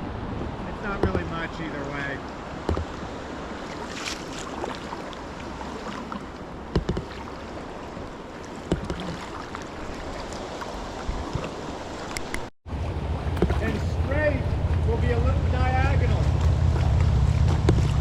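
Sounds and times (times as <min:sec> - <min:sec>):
rushing river water: 0:00.0 - 0:18.0
sharp knocks: 0:01.0 - 0:01.4, 0:02.6 - 0:03.0, 0:06.7 - 0:07.3, 0:08.7 - 0:09.2.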